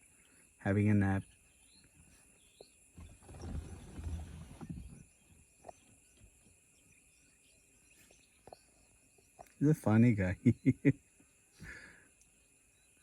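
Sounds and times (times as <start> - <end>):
insects droning: 0.0 - 13.0
wind rumble on microphone: 3.0 - 5.7.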